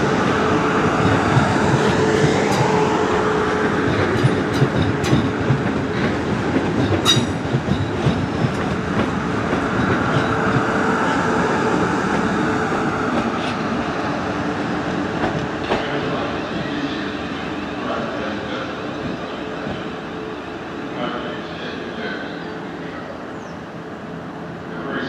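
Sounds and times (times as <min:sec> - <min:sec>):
steady train hum: 0:00.0 - 0:25.0
train wheels clattering over rails: 0:00.2 - 0:13.8, 0:14.9 - 0:17.5.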